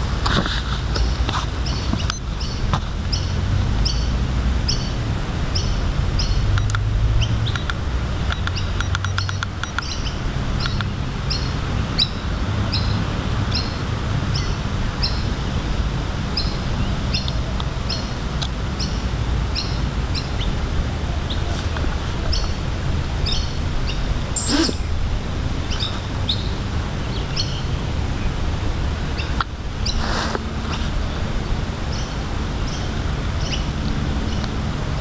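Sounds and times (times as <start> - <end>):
bird chirping: 23.2 - 25.0.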